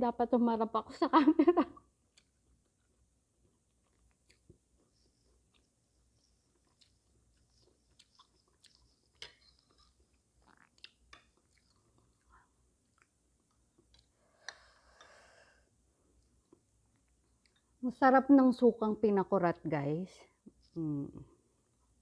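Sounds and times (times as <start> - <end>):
close chewing and mouth sounds: 1.8 - 17.8.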